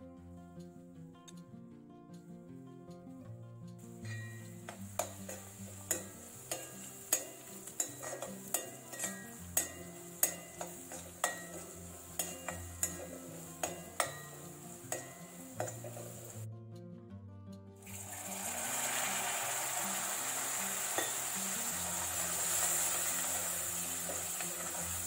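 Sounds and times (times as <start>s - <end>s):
soft background music: 0.0s - 25.0s
food sizzling in a pan: 3.8s - 16.5s, 17.8s - 25.0s
utensil knocking against pan: 4.1s - 16.0s.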